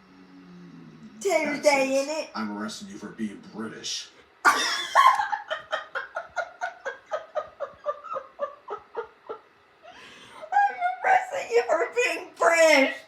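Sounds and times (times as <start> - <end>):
person laughing: 4.5 - 9.4.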